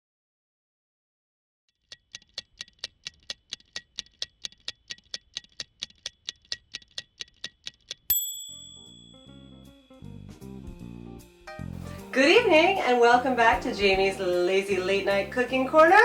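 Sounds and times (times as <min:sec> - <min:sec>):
mechanical timer ticking: 0:01.8 - 0:09.2
bright bell ding: 0:08.1 - 0:10.2.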